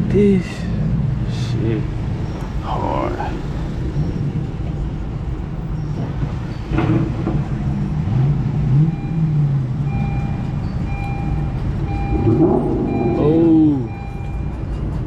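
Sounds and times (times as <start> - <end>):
car engine revving: 6.7 - 14.0.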